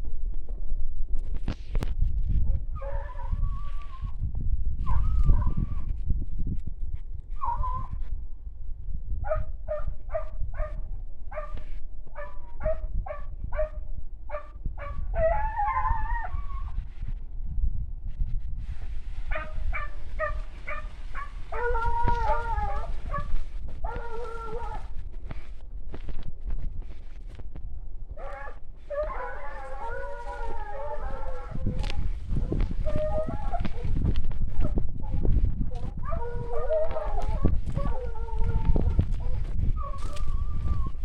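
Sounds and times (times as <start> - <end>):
dogs yelping barks: 2.8 - 3.4, 9.3 - 11.6, 12.2 - 16.7, 19.3 - 24.9, 28.2 - 34.0, 34.6 - 41.0
dogs howling bays: 2.8 - 4.1, 14.3 - 16.8, 19.3 - 25.0, 28.2 - 34.0, 34.6 - 41.0.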